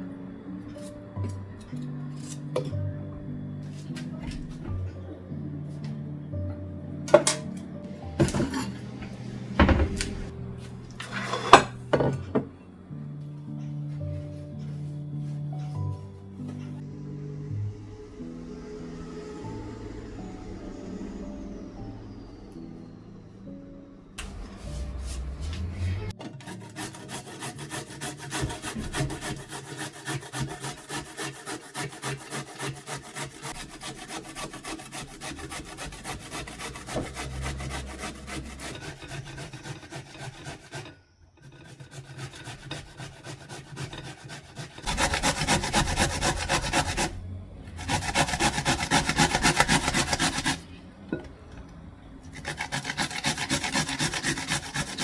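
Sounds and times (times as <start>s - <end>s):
rhythmic rasping by hand: 24.3s - 47.2s, 47.8s - 50.7s, 52.4s - 55.0s.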